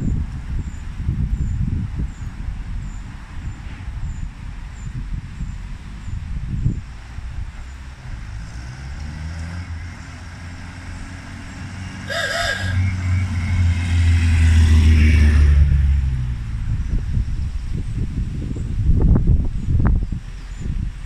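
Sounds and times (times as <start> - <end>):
car engine driving past: 7.7 - 16.8.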